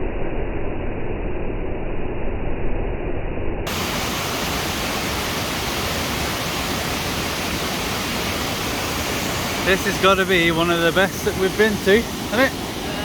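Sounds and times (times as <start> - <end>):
waterfall rushing: 3.7 - 13.0.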